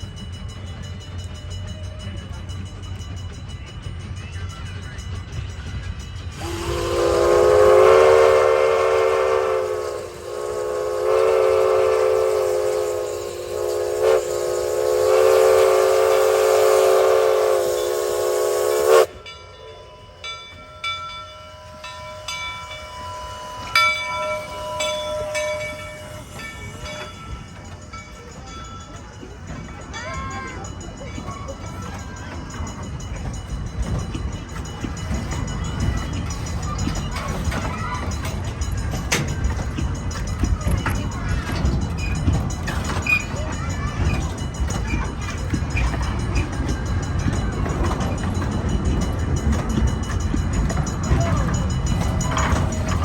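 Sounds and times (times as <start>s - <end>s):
steam locomotive whistle blasts: 6.4s - 19.2s, 21.5s - 27.3s.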